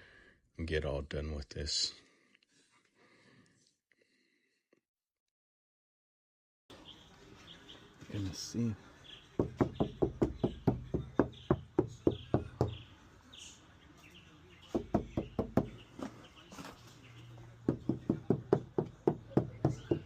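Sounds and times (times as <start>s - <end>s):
knuckles tapping on car panel: 9.4s - 12.8s, 14.8s - 15.8s, 17.7s - 20.0s.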